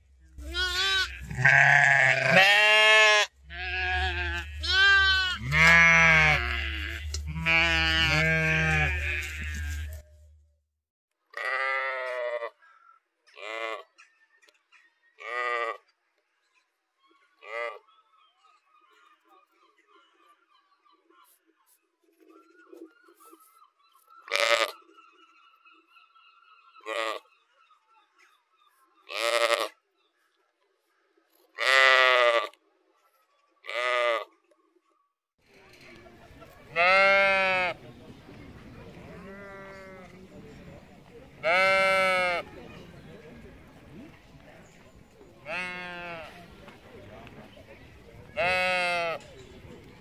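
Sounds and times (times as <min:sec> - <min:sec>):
sheep bleating: 0:00.4 - 0:10.0, 0:11.4 - 0:12.5, 0:29.1 - 0:29.8, 0:36.7 - 0:37.8, 0:39.2 - 0:40.1, 0:41.4 - 0:42.4, 0:45.5 - 0:46.4, 0:48.4 - 0:49.2.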